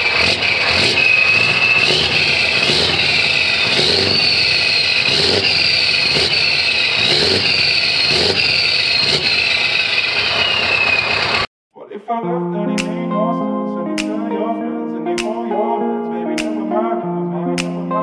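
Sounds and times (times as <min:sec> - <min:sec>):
diesel truck engine running: 0:00.0 - 0:11.5
high whistle drifting in pitch: 0:00.0 - 0:11.5.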